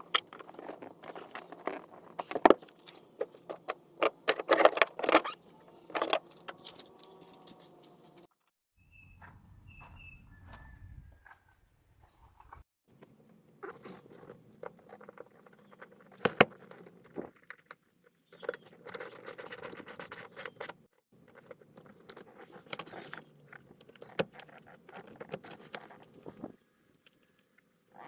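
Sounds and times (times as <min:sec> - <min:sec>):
handling clicks and knocks: 0:00.0 - 0:08.2
rustling and scraping: 0:00.0 - 0:08.3, 0:09.2 - 0:13.1.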